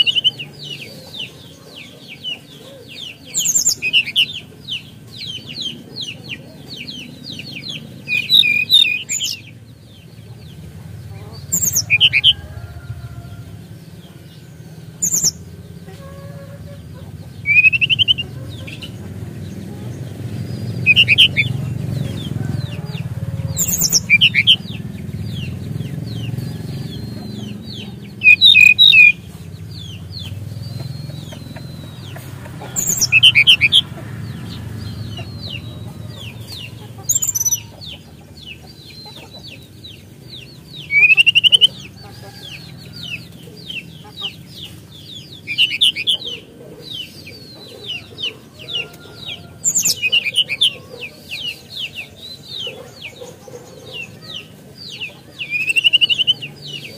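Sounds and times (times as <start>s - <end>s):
sharp bird chattering: 0.0s - 56.9s
songbird whistling: 6.8s - 9.4s, 11.5s - 12.6s, 14.9s - 15.5s, 17.3s - 19.0s, 20.6s - 22.4s, 23.5s - 33.9s, 40.8s - 41.9s.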